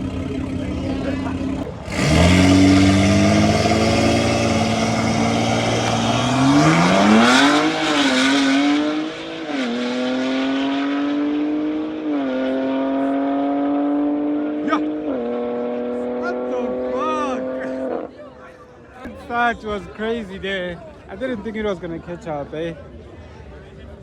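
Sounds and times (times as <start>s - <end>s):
cars accelerating at full throttle: 0.0s - 18.2s.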